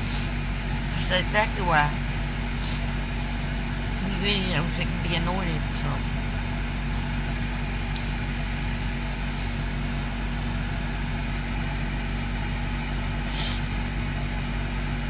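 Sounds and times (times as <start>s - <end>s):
low mechanical hum: 0.0s - 15.0s
brief hiss: 13.3s - 13.7s.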